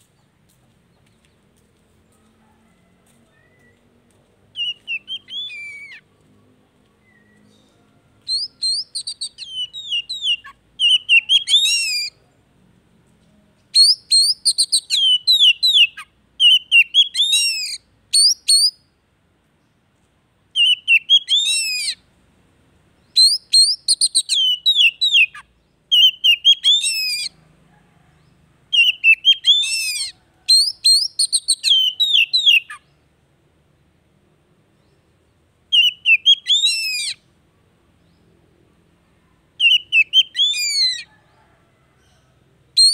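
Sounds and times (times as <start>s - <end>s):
bird whistling and chattering: 4.6s - 6.0s, 8.3s - 12.1s, 13.8s - 18.8s, 20.6s - 22.0s, 23.2s - 27.3s, 28.8s - 32.8s, 35.7s - 37.2s, 39.6s - 41.1s.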